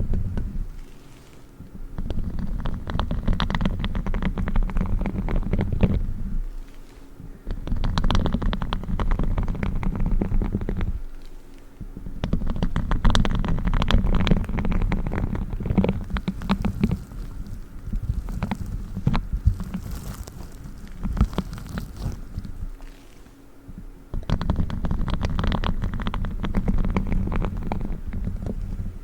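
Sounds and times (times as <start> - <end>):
gloves rubbing and scratching: 0.0 - 29.0
low rumble: 12.1 - 29.0.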